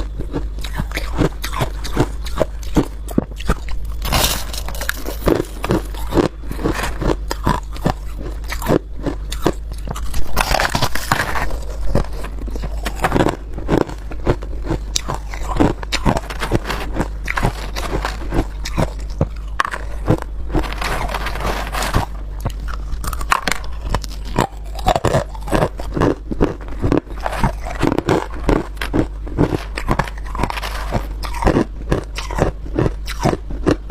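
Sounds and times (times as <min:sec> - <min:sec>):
ice crunching being chewed: 0:00.0 - 0:33.9
steady low hum: 0:00.0 - 0:33.9.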